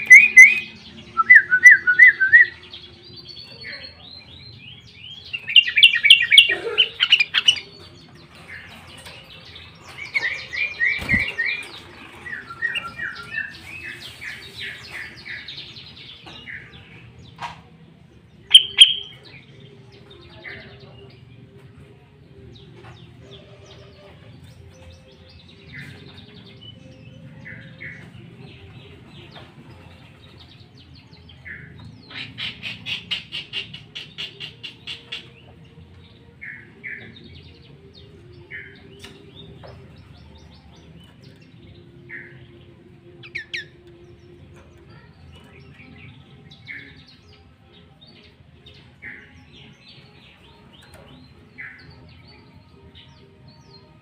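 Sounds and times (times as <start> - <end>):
bird chirping: 0.0 - 17.4, 18.4 - 19.8.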